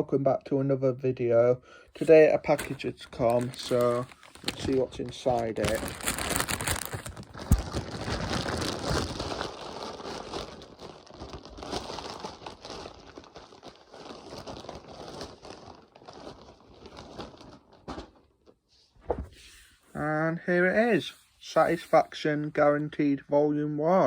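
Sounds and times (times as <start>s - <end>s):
packaging crinkling and rustling: 2.0s - 18.6s.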